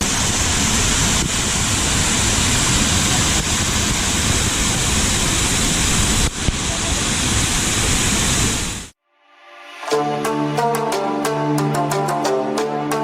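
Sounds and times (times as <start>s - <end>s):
waterfall roaring: 0.0s - 8.9s.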